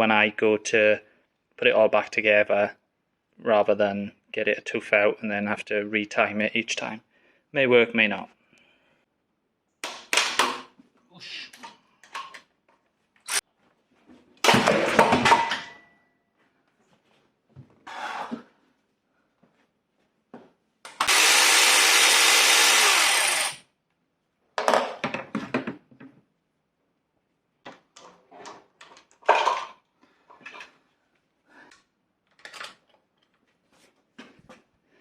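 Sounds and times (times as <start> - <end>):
power tool spinning: 21.0 - 23.6
tools and metal parts clinking: 32.3 - 33.4.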